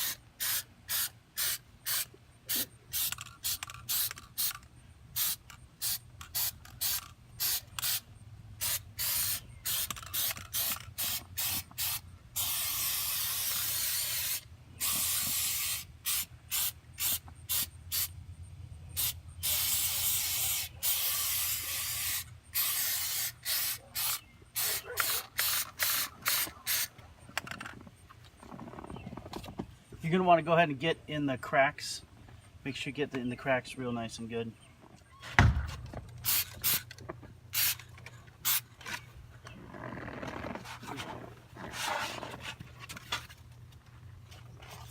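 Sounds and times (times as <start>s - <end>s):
aerosol can spraying: 8.6s - 18.1s, 19.0s - 26.9s, 37.6s - 37.8s.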